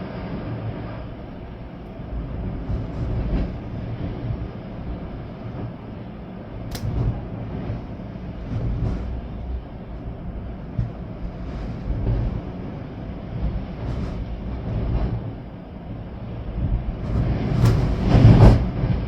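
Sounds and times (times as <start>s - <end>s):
wind buffeting microphone: 0.0s - 19.0s
sharp click: 6.7s - 7.1s, 17.6s - 18.2s.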